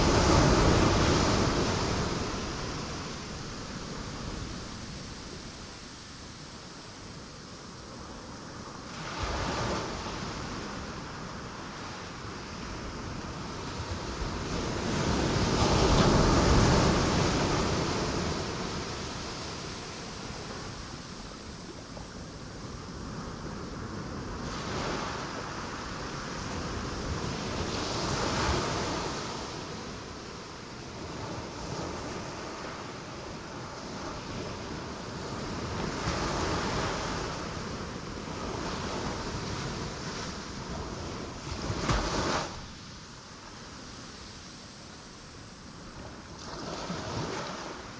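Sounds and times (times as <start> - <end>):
waves crashing on rocks: 0.0 - 5.2.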